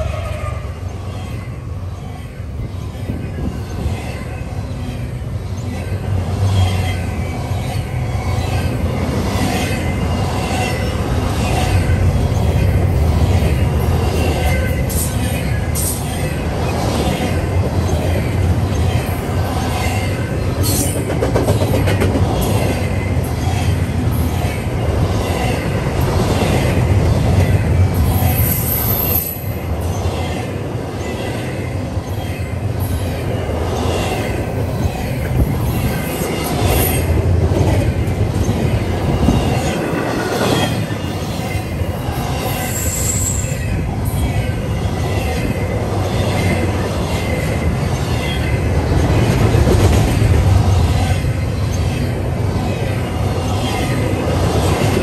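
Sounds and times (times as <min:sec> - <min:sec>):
freight train wheels rumbling: 0:00.0 - 0:55.0
high-pitched wheel squeals: 0:42.4 - 0:43.6.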